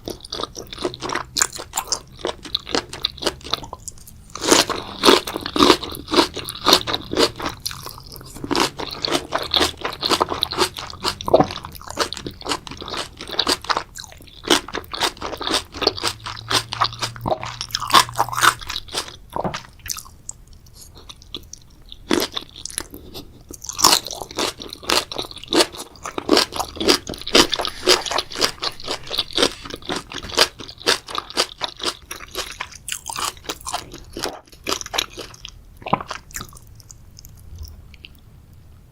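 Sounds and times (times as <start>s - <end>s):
person chewing and crunching food: 0.0s - 38.2s.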